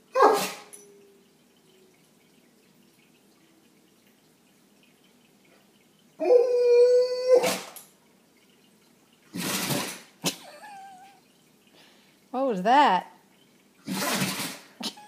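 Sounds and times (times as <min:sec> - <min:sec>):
dog sneezing: 0:00.2 - 0:00.7.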